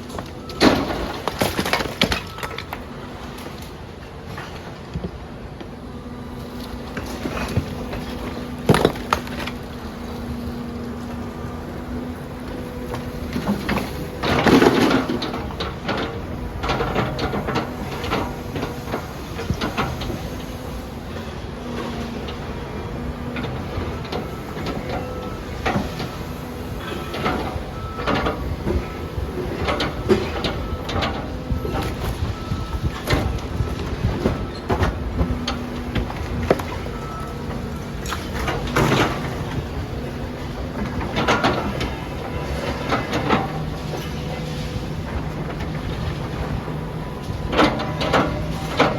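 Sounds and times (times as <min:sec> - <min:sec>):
excavator engine rumble: 0:00.0 - 0:48.9
masonry breaking and scraping: 0:00.1 - 0:03.7, 0:07.2 - 0:09.7
cracks and crashes of breaking material: 0:00.6 - 0:02.8.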